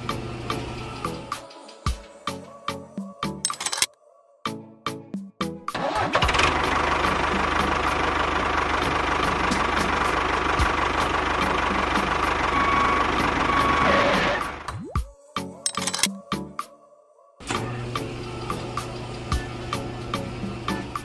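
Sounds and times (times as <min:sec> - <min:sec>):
motor running steadily: 0:17.6 - 0:21.0.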